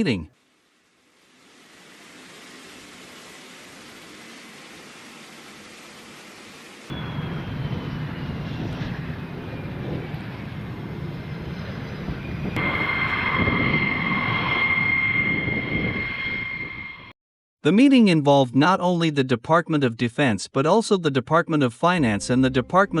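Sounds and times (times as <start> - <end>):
faint hiss: 0.0 - 6.9
jet engine whine: 0.7 - 17.2.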